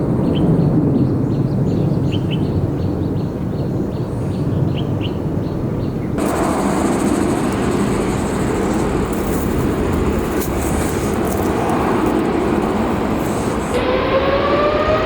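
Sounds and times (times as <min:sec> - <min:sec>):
jet engines roaring: 0:06.2 - 0:15.0
rising engine whine: 0:06.2 - 0:15.0.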